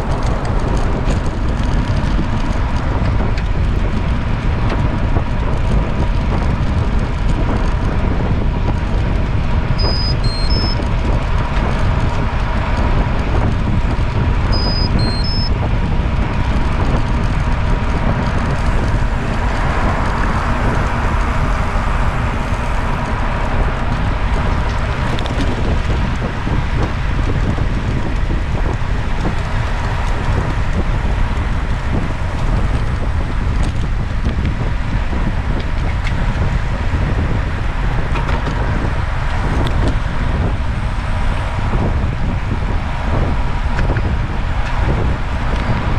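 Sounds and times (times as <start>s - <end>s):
road noise: 0.0s - 45.9s
wind on microphone: 0.0s - 45.9s
three-note electronic beeps: 9.8s - 10.8s, 14.5s - 15.5s.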